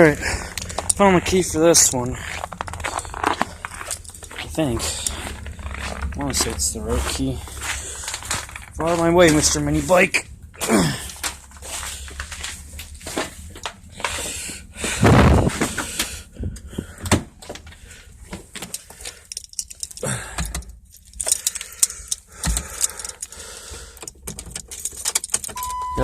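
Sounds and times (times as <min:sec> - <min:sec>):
low steady rumble: 0:00.0 - 0:26.0
keys jangling: 0:02.3 - 0:06.5, 0:18.7 - 0:25.7.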